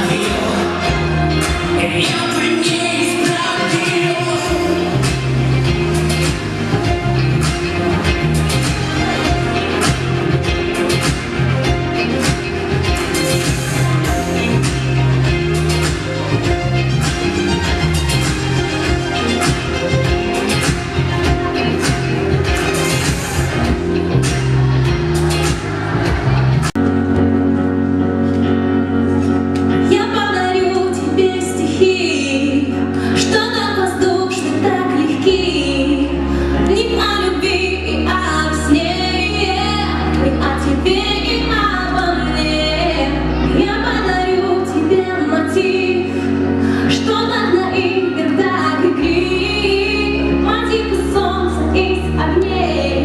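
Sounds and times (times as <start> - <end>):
woman singing: 0.0 - 5.2, 29.8 - 53.0
musical accompaniment with bass: 0.0 - 53.0.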